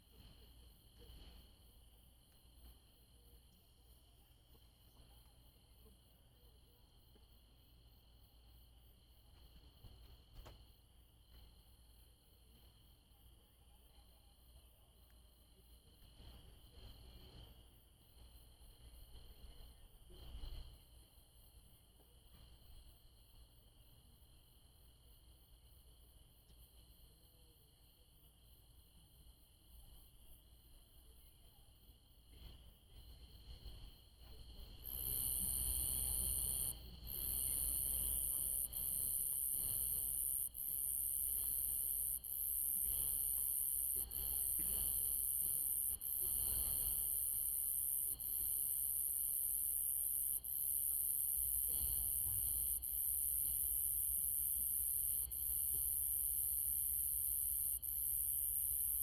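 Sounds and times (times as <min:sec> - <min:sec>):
cricket trills: 0:00.0 - 0:59.0
high-pitched insect buzz: 0:34.8 - 0:59.0.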